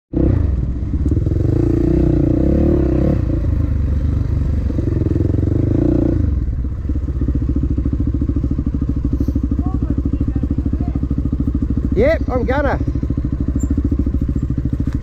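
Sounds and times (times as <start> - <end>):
dirt bike engine revving: 0.1 - 15.0.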